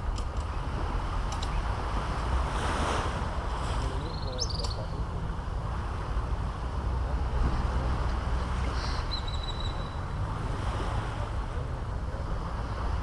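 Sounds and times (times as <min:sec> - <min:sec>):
wind rumbling on microphone: 0:00.0 - 0:13.0
surf washing onto beach: 0:00.6 - 0:09.1, 0:10.0 - 0:13.0
bird high whistle: 0:08.8 - 0:10.0.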